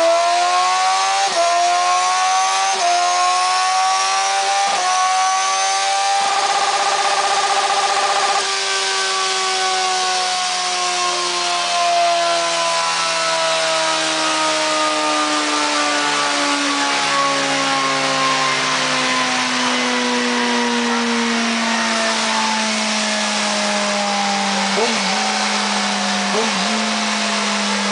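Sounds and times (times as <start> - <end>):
dyno roller falling whine: 16.1 - 27.9
motorcycle engine cutting off: 24.3 - 27.9.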